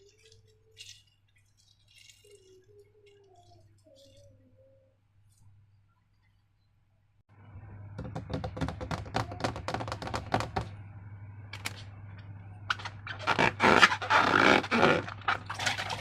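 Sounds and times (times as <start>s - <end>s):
slime squelching: 0.0s - 4.5s
steady low hum: 0.0s - 16.0s.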